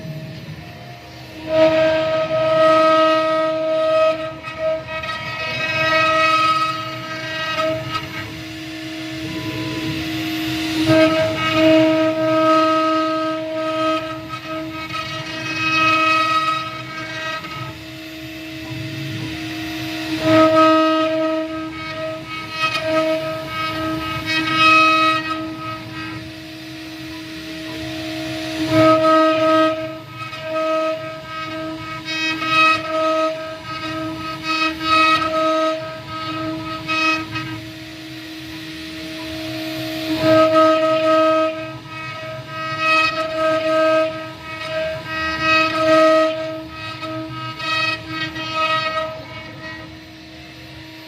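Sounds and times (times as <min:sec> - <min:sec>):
router spindle whining: 0:00.0 - 0:51.0.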